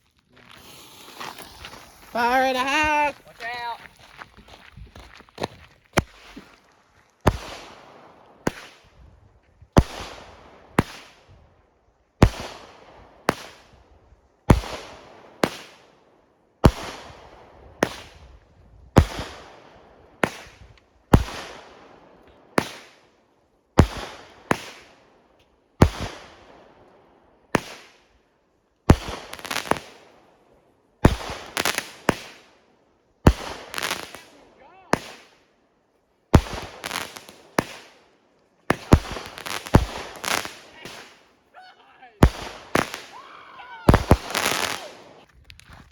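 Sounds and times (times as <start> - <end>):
fireworks crackle: 0.0 - 11.2, 28.9 - 30.3, 31.0 - 32.6, 33.2 - 35.5, 36.3 - 45.9
fireworks bangs: 0.4 - 6.5, 7.2 - 8.9, 28.9 - 30.2, 31.0 - 32.5, 33.3 - 35.4, 36.3 - 38.0, 38.6 - 45.3.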